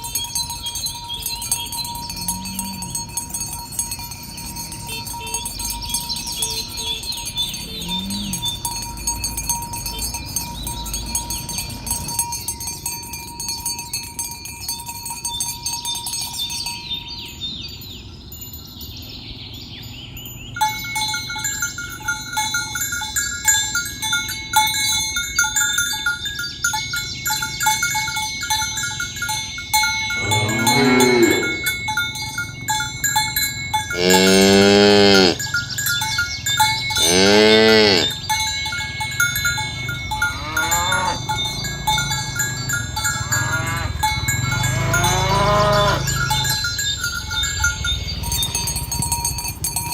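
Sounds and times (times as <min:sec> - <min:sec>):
cattle bells clinking: 0:00.0 - 0:49.9
cow mooing: 0:02.2 - 0:03.0, 0:07.6 - 0:08.6, 0:30.2 - 0:31.8, 0:33.9 - 0:35.5, 0:37.0 - 0:38.2, 0:40.2 - 0:41.3, 0:43.2 - 0:46.4.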